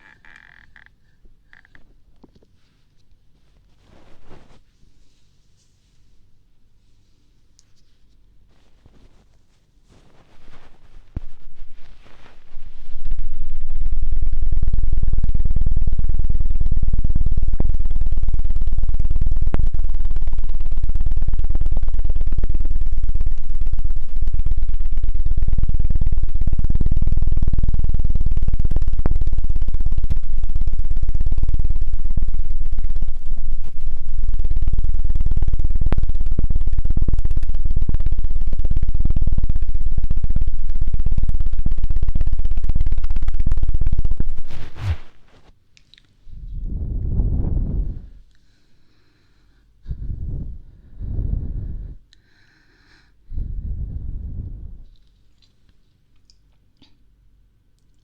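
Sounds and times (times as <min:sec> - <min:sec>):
low pulsing on microphone: 0:10.3 - 0:45.5, 0:46.2 - 0:48.3, 0:49.8 - 0:52.1, 0:53.2 - 0:55.0.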